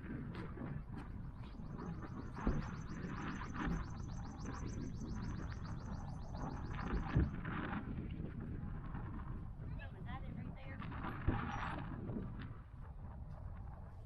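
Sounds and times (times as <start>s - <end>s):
low outdoor rumble: 0.0s - 14.0s
songbird trilling: 1.5s - 7.3s.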